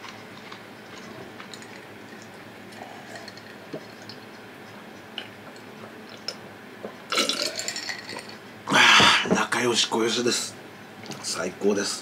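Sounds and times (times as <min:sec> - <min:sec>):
wet chewing: 0:00.0 - 0:06.4.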